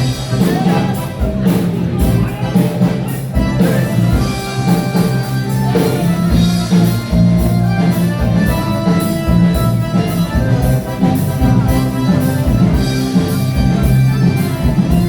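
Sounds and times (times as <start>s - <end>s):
bass guitar: 0.0s - 15.0s
drum kit beat: 0.0s - 15.0s
electric guitar: 0.0s - 15.0s.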